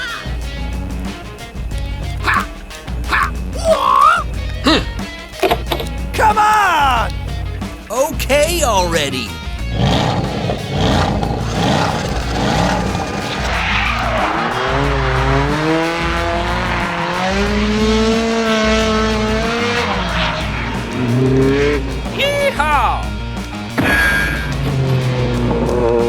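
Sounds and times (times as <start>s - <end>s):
background music: 0.0s - 26.0s
car engine: 9.3s - 22.2s, 23.1s - 26.0s.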